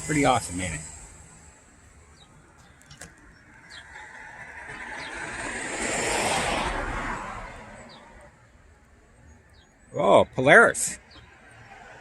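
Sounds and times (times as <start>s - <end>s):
vehicle passing by: 3.6s - 8.3s, 11.3s - 12.0s.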